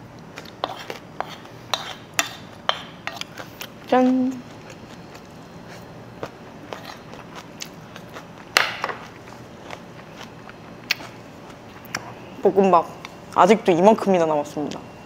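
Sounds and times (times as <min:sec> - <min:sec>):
close-miked chewing: 0:03.1 - 0:12.2.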